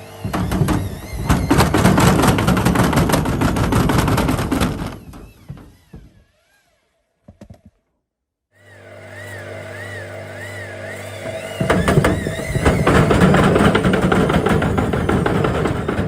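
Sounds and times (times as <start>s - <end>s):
washing machine banging and rattling: 0.2s - 6.1s, 11.3s - 16.0s.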